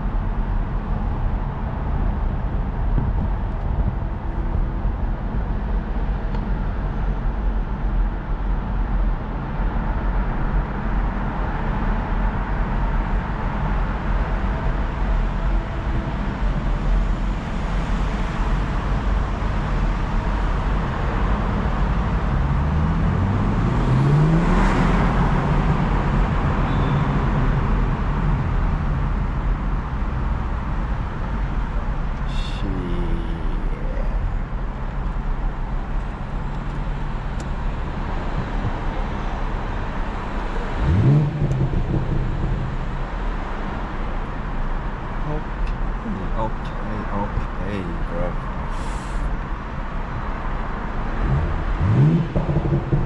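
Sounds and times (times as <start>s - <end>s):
road noise: 0.0s - 53.0s
car engine accelerating: 14.0s - 53.0s.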